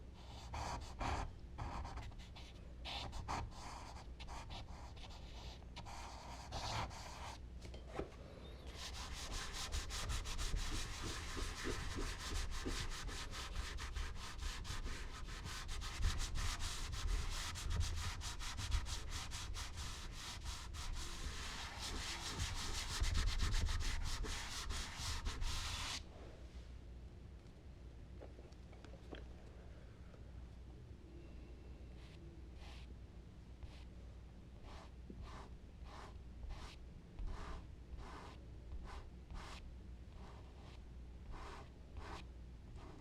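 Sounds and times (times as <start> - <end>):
charcoal scratching on paper: 0.4 - 7.4, 8.8 - 26.0, 34.6 - 42.2.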